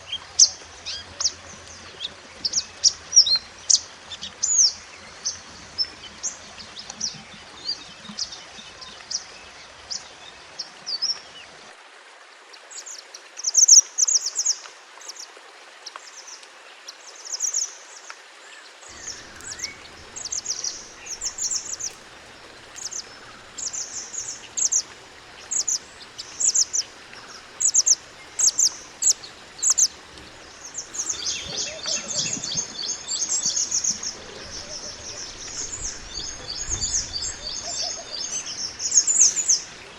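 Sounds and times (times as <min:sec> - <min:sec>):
faint hiss: 0:12.7 - 0:39.9
bird singing high chirps: 0:18.9 - 0:39.9.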